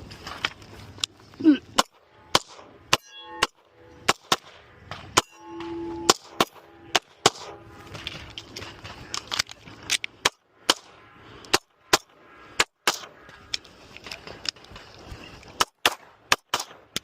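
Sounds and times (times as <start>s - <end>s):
airsoft pistol shots: 1.8s - 7.6s, 11.5s - 13.1s, 15.6s - 17.0s
steel targets ringing: 2.1s - 4.1s, 5.1s - 7.8s.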